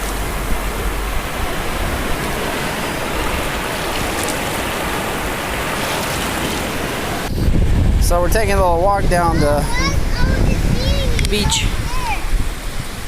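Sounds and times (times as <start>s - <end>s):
ocean surf washing ashore: 0.0s - 13.0s.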